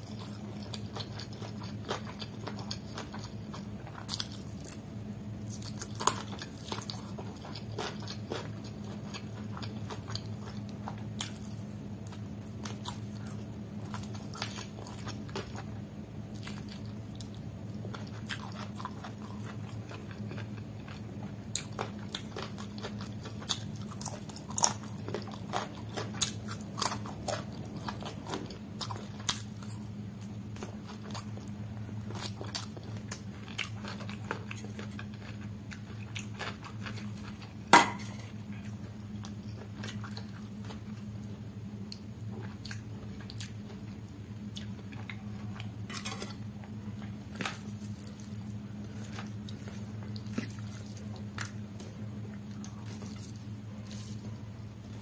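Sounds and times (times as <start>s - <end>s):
wet chewing: 0.0s - 4.8s, 5.4s - 55.0s
steady low hum: 0.0s - 55.0s.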